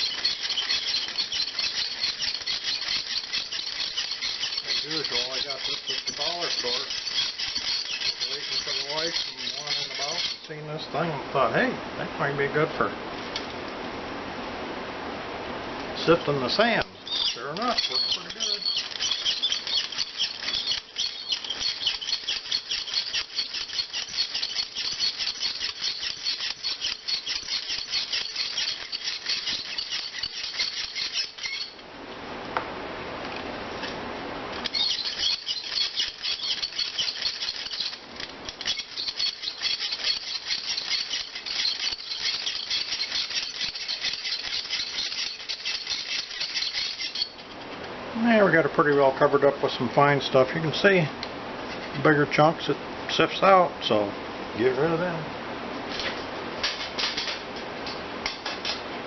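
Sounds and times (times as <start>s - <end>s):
sand rattling on mesh sieve: 0.0s - 10.8s, 16.0s - 31.8s, 34.6s - 47.4s
dull steady hiss: 0.0s - 59.0s.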